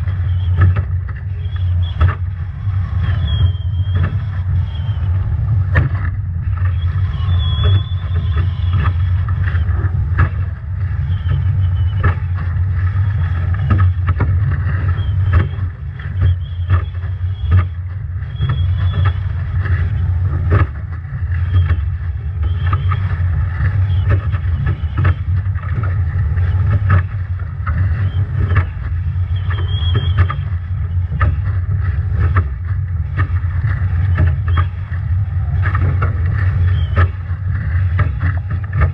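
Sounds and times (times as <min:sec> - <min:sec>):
rushing water: 0:00.0 - 0:38.9
waves slapping against hull: 0:00.0 - 0:38.9
wind buffeting on microphone: 0:00.0 - 0:38.9
thin high whistle: 0:03.1 - 0:05.2, 0:06.7 - 0:08.8, 0:29.3 - 0:30.4.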